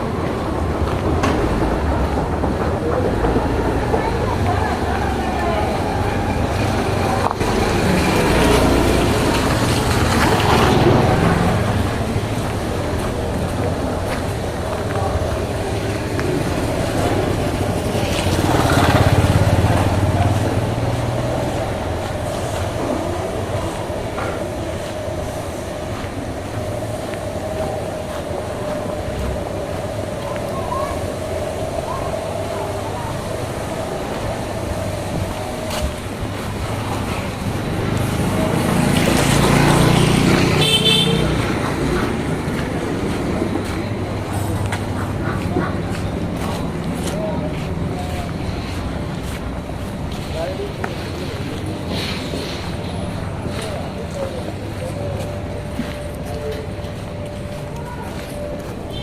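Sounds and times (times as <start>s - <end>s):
vehicle engine passing: 0.0s - 58.9s
car horn toot: 40.6s - 41.4s.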